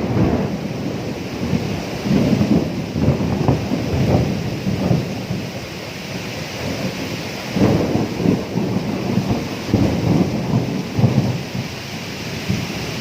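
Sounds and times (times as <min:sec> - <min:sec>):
heavy rain hissing: 0:00.0 - 0:13.0
rolling thunder: 0:00.0 - 0:13.0.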